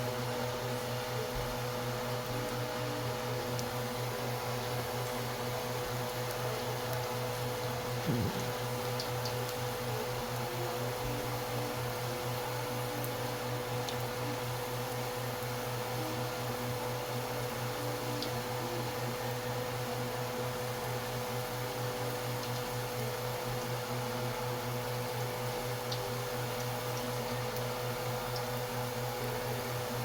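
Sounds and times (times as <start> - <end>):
even hiss: 8.0 - 8.8.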